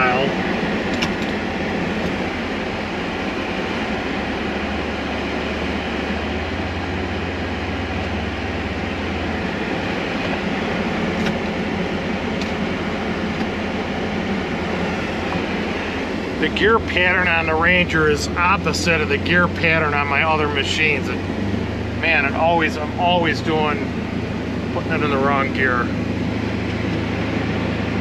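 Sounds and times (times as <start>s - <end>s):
utility vehicle engine rumbling: 0.0s - 28.0s.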